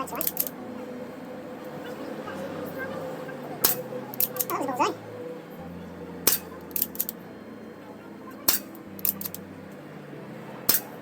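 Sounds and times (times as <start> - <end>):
air pistol shots: 3.6 - 4.5, 6.3 - 7.1, 8.5 - 9.4, 10.7 - 11.0.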